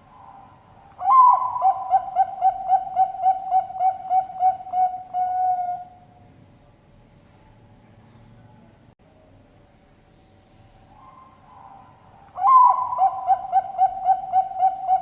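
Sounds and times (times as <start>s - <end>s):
dove cooing: 0.0s - 6.0s, 11.0s - 15.0s.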